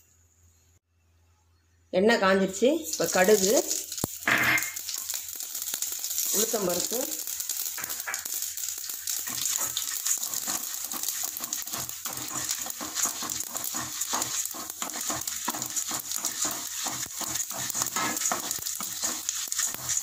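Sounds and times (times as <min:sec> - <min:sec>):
seeds sizzling and crackling in oil: 0:02.6 - 0:20.0
wooden spatula scraping pan: 0:09.3 - 0:20.0.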